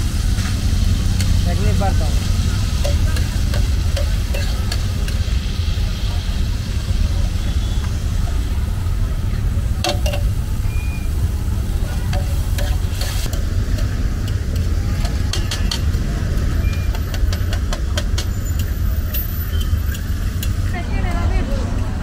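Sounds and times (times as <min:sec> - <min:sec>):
meat sizzling on a pan: 0:00.0 - 0:08.9
metal spatula scraping pan: 0:12.0 - 0:13.4.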